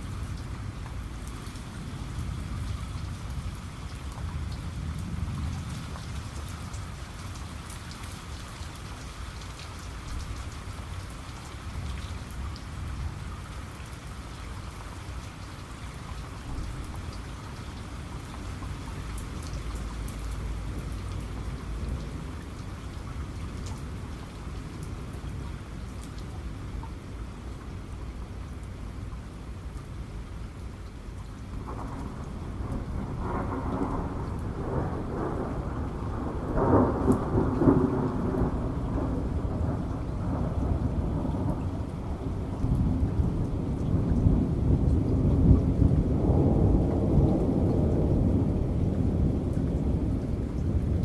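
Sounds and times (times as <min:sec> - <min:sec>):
heavy rain: 0:00.0 - 0:51.0
raindrop ticks: 0:13.8 - 0:29.9, 0:30.8 - 0:46.1, 0:48.8 - 0:51.0
low thunder rumble: 0:31.5 - 0:51.0.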